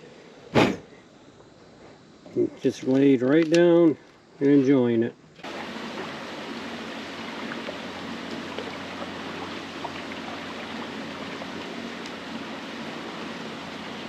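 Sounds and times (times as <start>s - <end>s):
water trickling and rushing: 5.4s - 14.0s.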